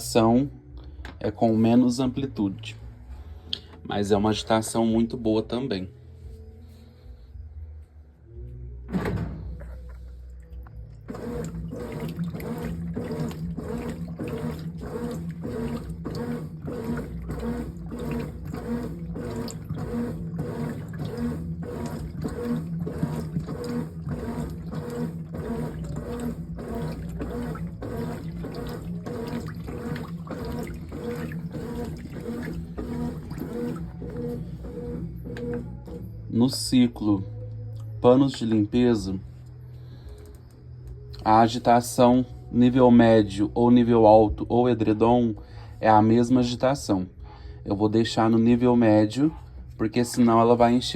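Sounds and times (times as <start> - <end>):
washing machine agitating: 9.0 - 36.8, 41.2 - 43.1, 47.8 - 50.9
water sloshing: 9.5 - 36.0.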